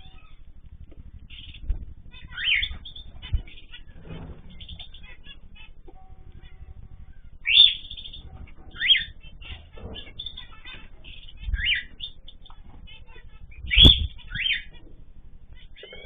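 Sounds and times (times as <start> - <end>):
cage birds chirping: 0.0 - 16.0
loud sweeping bird calls: 1.3 - 5.7, 6.4 - 12.5, 13.5 - 14.8.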